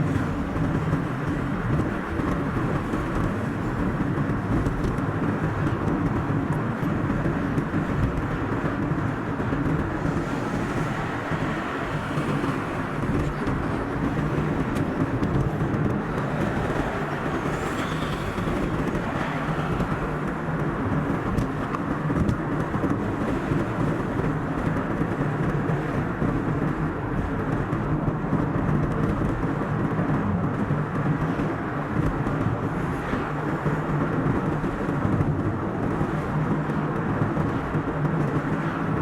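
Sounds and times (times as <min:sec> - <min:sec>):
car driving on road: 0:00.0 - 0:39.0.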